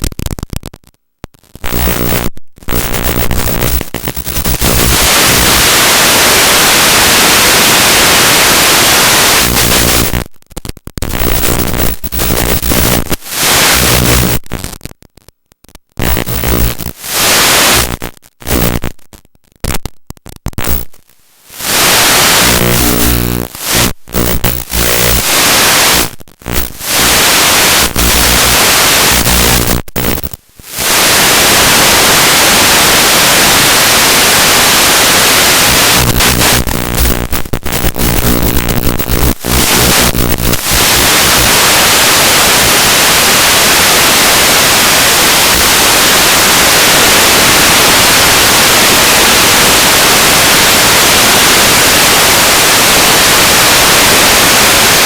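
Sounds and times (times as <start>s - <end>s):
radio static hiss: 0.0s - 55.0s
stuttering buzz: 1.6s - 10.3s, 10.9s - 14.8s, 16.0s - 19.0s, 20.5s - 43.5s.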